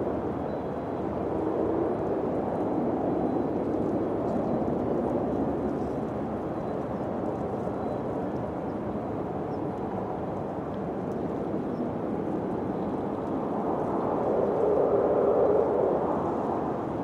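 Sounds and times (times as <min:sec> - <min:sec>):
wind blowing: 0:12.2 - 0:17.0.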